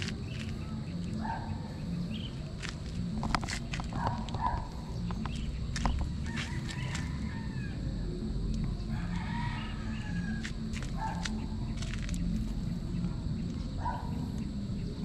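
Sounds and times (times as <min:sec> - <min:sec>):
bird calls: 0:00.0 - 0:07.9.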